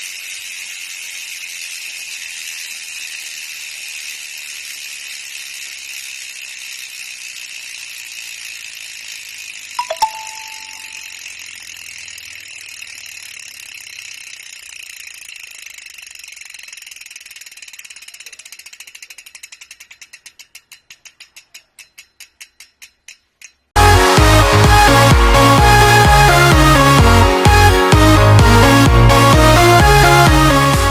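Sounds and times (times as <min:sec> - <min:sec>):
bicycle freehub clicking: 0:00.0 - 0:23.7
short metallic ding: 0:09.8 - 0:11.1.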